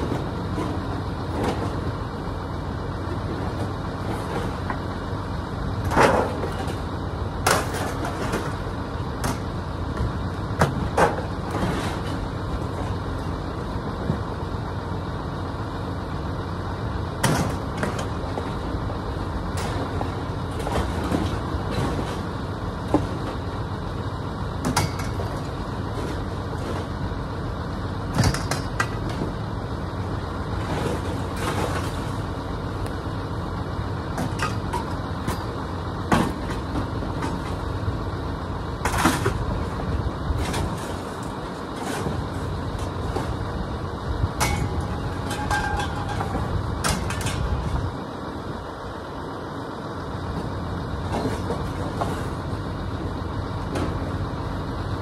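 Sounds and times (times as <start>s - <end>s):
vehicle engine running: 0.0s - 55.0s
sharp knocks and clanks: 24.6s - 25.4s, 28.1s - 29.4s, 44.4s - 47.6s.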